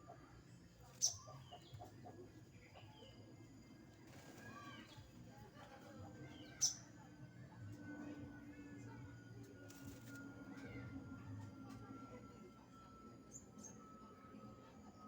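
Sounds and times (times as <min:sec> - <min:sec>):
faint bird chirps: 0:00.2 - 0:01.9, 0:06.2 - 0:07.1.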